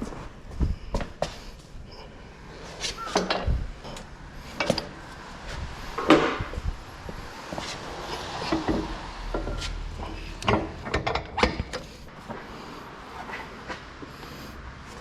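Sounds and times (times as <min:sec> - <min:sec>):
tools and metal parts knocking: 0:03.2 - 0:05.0, 0:08.2 - 0:11.9.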